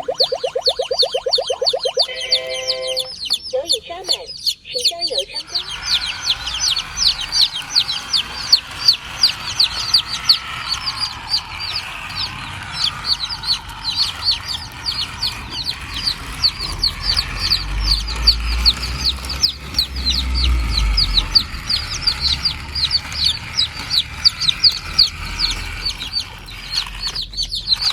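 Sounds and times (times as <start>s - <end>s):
chicken clucking: 0.0s - 10.7s
chicks peeping: 0.0s - 27.9s.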